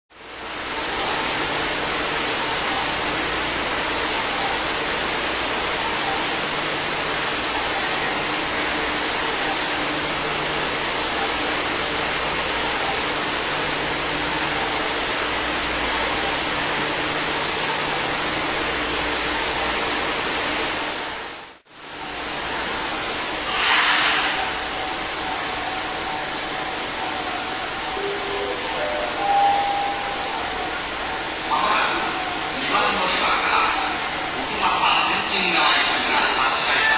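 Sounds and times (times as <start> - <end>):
subway train hiss and hum: 0.1 - 36.9
loud hiss of air: 23.0 - 25.2
steady mid-pitched tone: 24.0 - 36.7.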